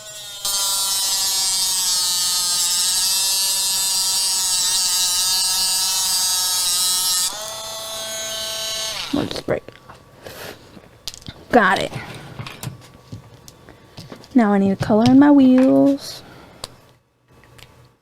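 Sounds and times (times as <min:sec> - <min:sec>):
electric motor tool whining: 0:00.0 - 0:09.5.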